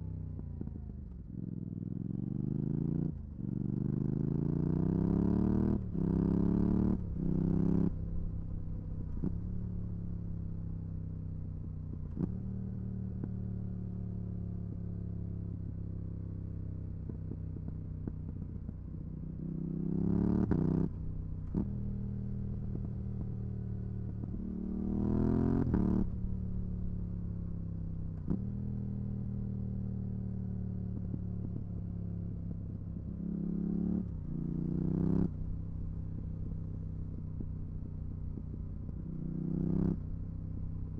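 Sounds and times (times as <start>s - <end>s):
motorcycle engine revving: 0.0s - 10.8s, 19.3s - 40.9s.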